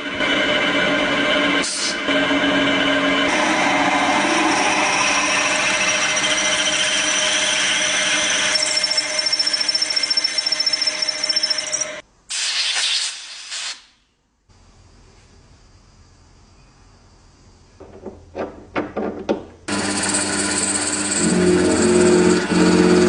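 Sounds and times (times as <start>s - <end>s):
power tool whining: 3.3s - 12.0s, 19.7s - 23.0s.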